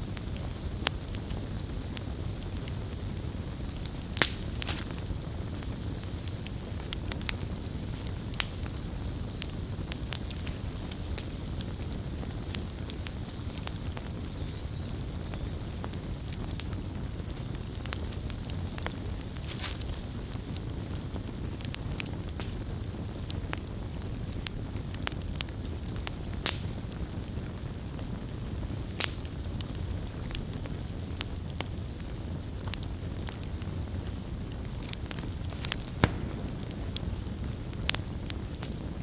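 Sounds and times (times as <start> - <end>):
campfire crackling and popping: 0.0 - 39.0.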